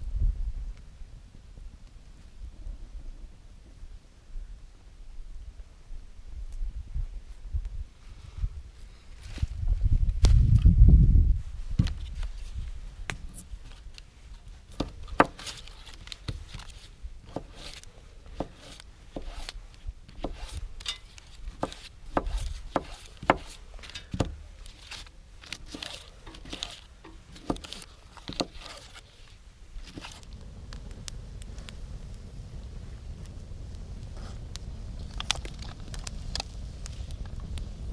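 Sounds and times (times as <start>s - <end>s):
knife chopping on wooden board: 17.3s - 17.7s, 18.4s - 19.5s, 20.2s - 20.6s, 21.6s - 24.4s
knife scraping board: 17.3s - 17.8s, 18.4s - 29.0s.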